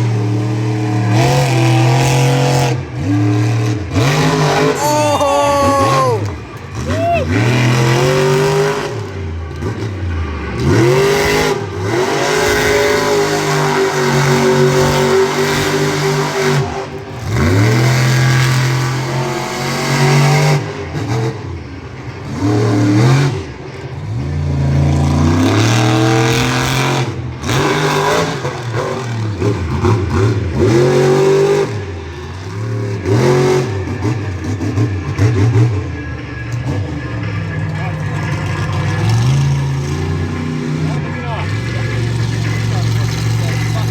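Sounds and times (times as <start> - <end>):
truck engine revving hard: 0.0 - 43.9.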